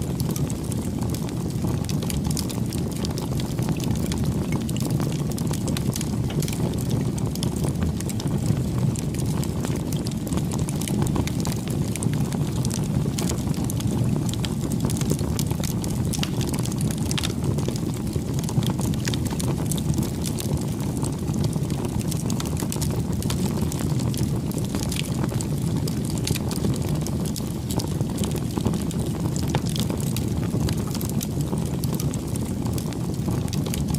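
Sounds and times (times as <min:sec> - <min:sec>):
fire rumbling: 0:00.0 - 0:33.9
wood crackling and popping: 0:00.0 - 0:33.9.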